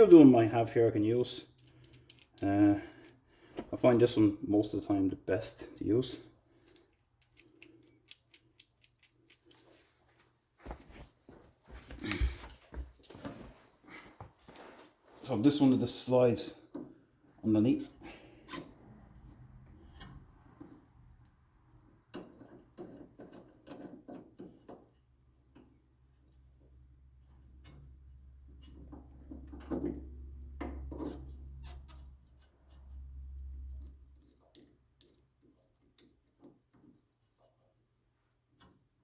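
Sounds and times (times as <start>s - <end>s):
metal hand tools clicking and scraping: 1.4s - 3.2s, 6.6s - 9.9s.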